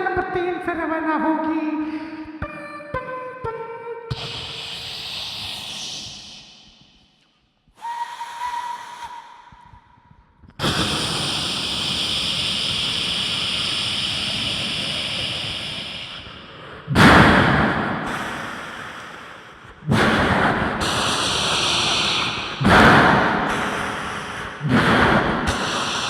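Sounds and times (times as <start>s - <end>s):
vocal steam hiss: 4.1s - 6.8s, 10.6s - 16.7s, 18.0s - 26.0s
vocal whistle tone: 4.1s - 11.2s.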